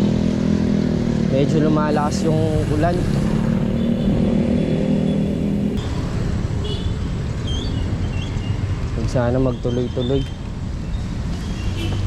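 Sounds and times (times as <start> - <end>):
vehicle engine droning: 0.0 - 6.6
road and wind rumble: 0.0 - 12.0.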